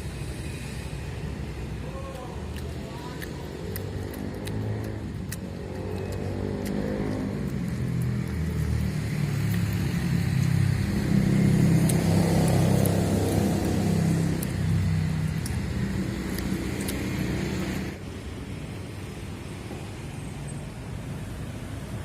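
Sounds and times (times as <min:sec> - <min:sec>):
vehicle engine running: 0:02.7 - 0:18.0.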